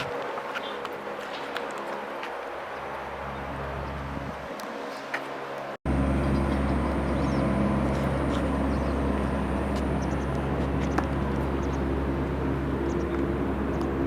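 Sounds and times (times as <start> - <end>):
distant engine drone: 0.0 - 14.0.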